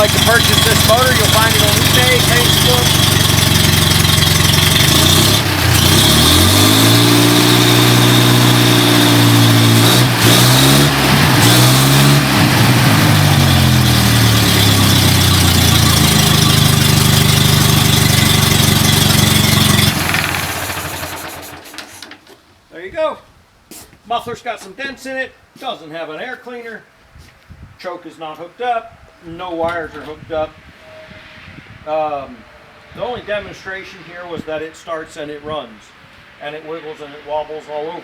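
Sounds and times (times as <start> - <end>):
gas engine revving and idling: 0.0 - 22.2.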